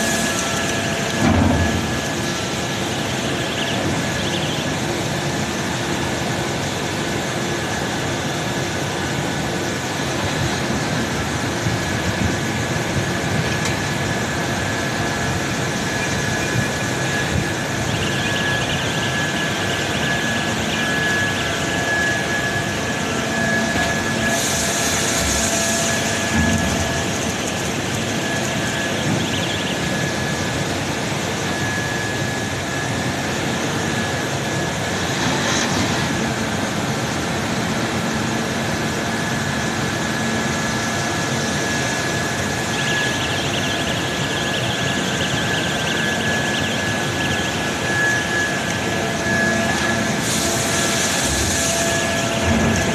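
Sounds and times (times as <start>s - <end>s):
machinery noise with whining tones: 0.0s - 52.9s.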